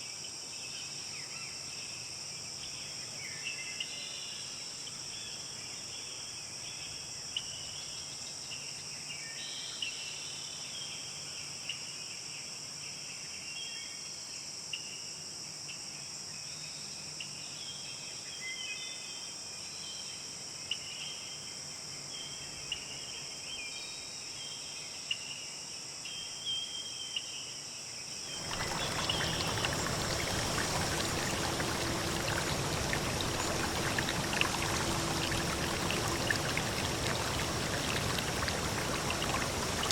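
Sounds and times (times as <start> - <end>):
insects buzzing: 28.3 - 39.9
rushing water: 28.3 - 39.9.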